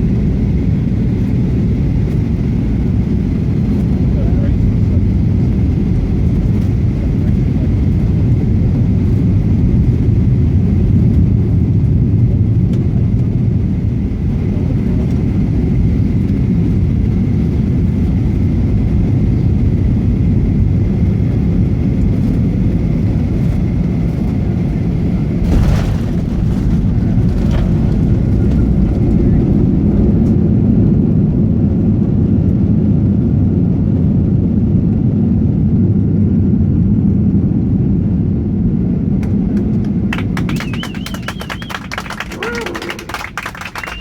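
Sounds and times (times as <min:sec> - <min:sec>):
engine rumble and rushing air: 0:00.0 - 0:44.0
wheels thumping on runway: 0:25.1 - 0:30.6.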